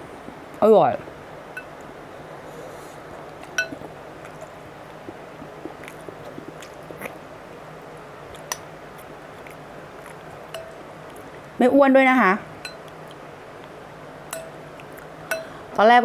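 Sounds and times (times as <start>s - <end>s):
person chewing soft food: 1.8s - 11.6s, 12.7s - 13.9s, 14.7s - 15.2s.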